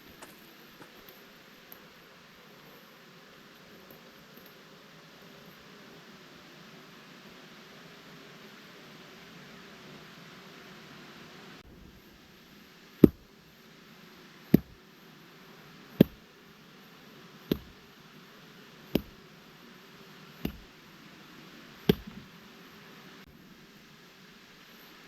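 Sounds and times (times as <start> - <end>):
axe chopping wood: 13.0 - 13.3, 14.5 - 14.8, 16.0 - 16.2, 17.5 - 17.8, 18.9 - 19.2, 20.4 - 20.7, 21.8 - 22.3.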